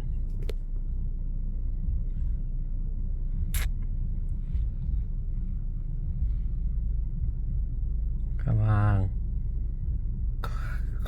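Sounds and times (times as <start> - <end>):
car idling inside cabin: 0.0 - 11.0
sharp click: 3.5 - 3.7.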